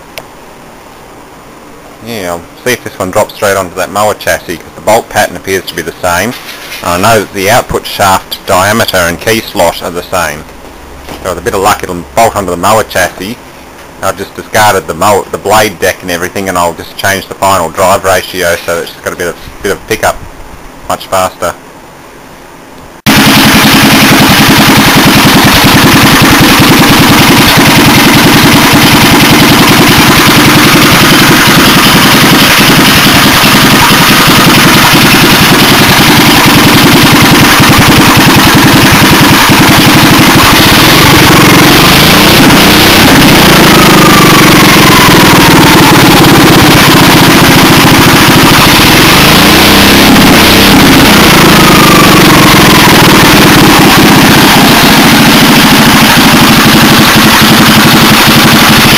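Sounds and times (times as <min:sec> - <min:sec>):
falling engine whines: 0:23.1 - 0:58.9
single-cylinder engine running: 0:23.1 - 0:58.9.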